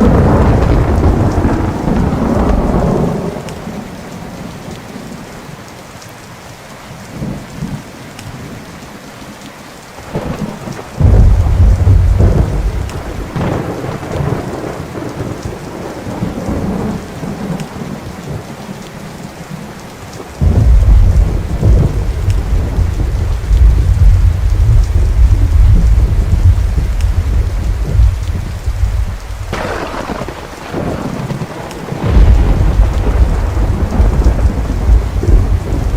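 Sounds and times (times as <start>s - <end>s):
thunder rolling: 0.0s - 3.9s, 10.0s - 18.5s, 20.3s - 35.9s
steady rain: 0.0s - 35.9s.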